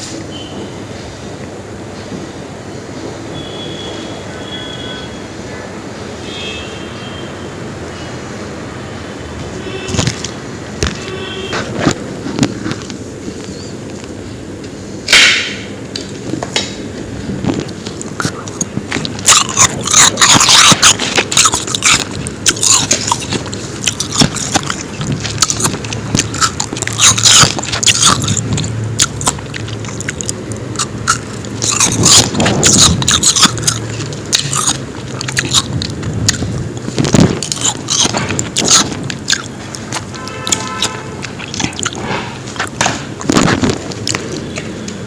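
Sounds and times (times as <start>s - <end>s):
chewing: 17.5s - 45.0s
crunching ice: 17.6s - 44.5s.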